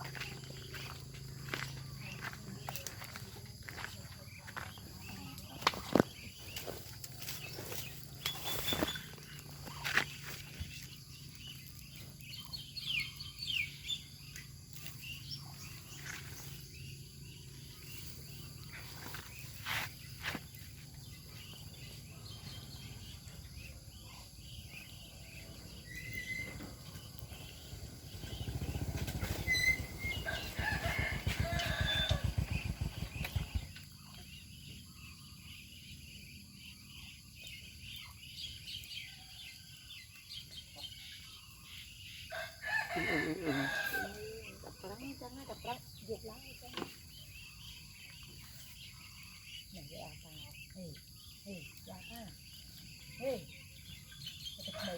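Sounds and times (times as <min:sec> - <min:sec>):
ducks pecking and dabbling: 0:00.0 - 0:54.9
low rumble: 0:26.7 - 0:34.7.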